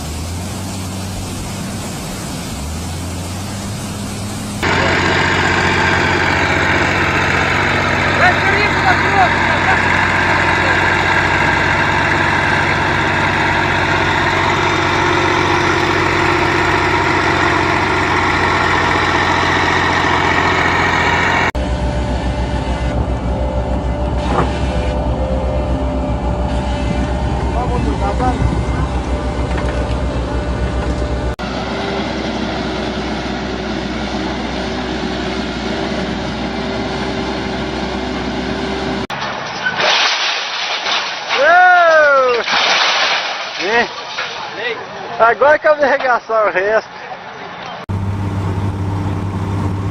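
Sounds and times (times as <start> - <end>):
heavy machine engine running: 0.0 - 39.4, 47.9 - 49.9
engine with pulsing throb: 2.8 - 31.9.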